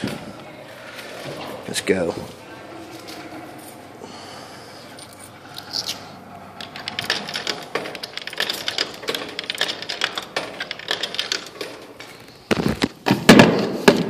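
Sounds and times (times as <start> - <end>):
claw machine clicking: 5.5 - 12.3.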